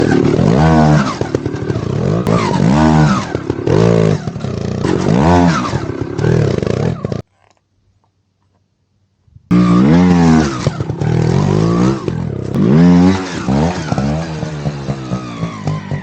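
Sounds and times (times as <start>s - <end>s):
dirt bike engine revving: 0.0s - 7.2s, 9.5s - 16.0s.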